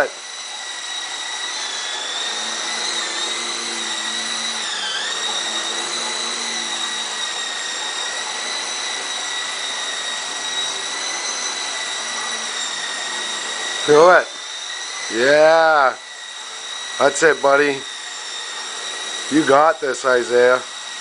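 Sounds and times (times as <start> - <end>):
rc helicopter hovering whine: 0.0 - 21.0.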